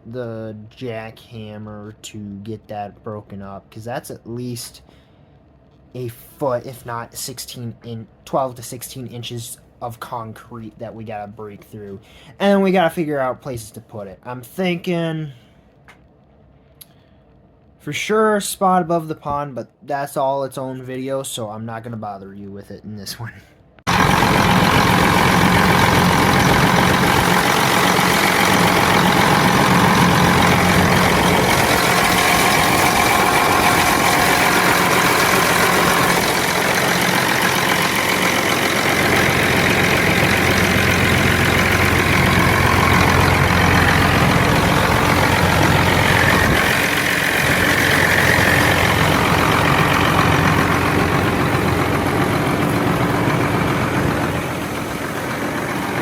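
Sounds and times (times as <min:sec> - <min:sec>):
farm machinery engine droning: 0:23.9 - 0:56.0.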